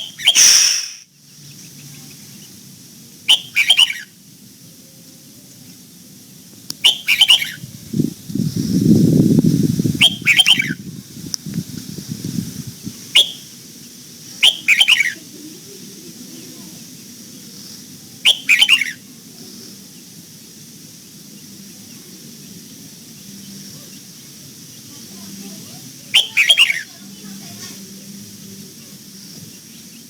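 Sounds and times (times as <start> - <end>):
bird chirping: 0.0 - 2.6, 3.3 - 4.1, 6.8 - 7.6, 10.0 - 10.8, 18.2 - 19.0, 26.2 - 26.9.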